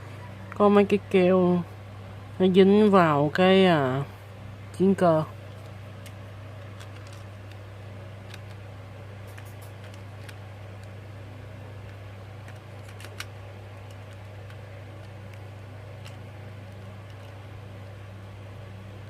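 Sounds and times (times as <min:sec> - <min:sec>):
plastic toy parts clicking: 0:06.0 - 0:07.6, 0:08.3 - 0:08.6, 0:09.3 - 0:11.0, 0:11.8 - 0:17.4.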